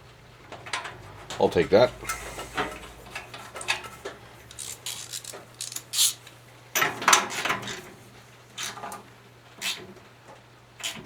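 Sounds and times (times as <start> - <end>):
metal hand tools clinking: 3.6 - 6.3.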